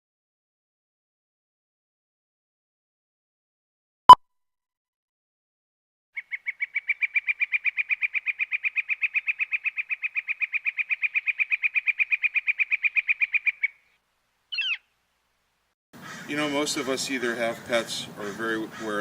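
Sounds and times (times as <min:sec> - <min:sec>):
bird calling rapid notes: 0:06.2 - 0:14.9.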